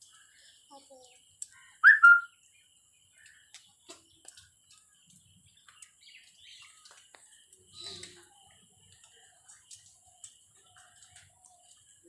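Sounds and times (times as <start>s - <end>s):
faint chirps and ticks: 0.0s - 12.0s
bird calling loudly: 1.8s - 2.3s.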